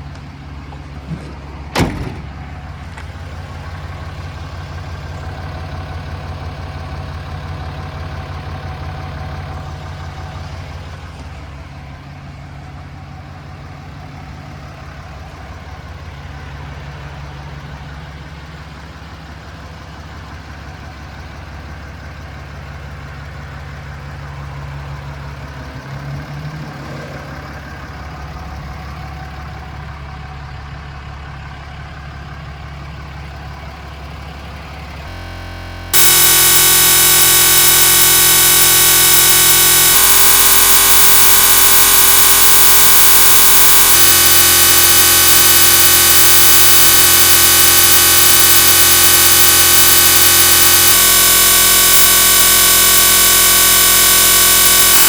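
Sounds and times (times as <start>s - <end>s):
diesel engine idling: 0.0s - 25.8s, 27.3s - 37.1s.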